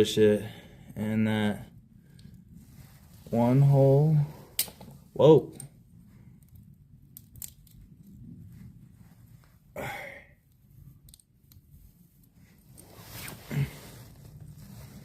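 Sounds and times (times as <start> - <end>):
small handling clicks: 7.2 - 8.2, 11.0 - 11.6.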